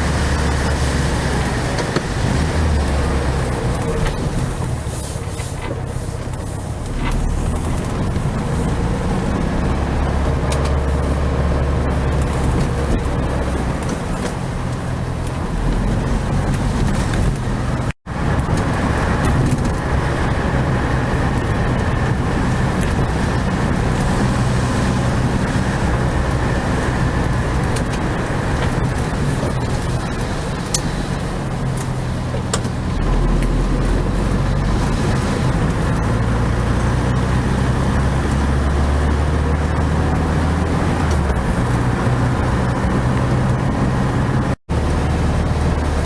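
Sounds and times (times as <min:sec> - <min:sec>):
car engine running: 0:00.0 - 0:46.0
road and tyre noise: 0:00.0 - 0:46.0.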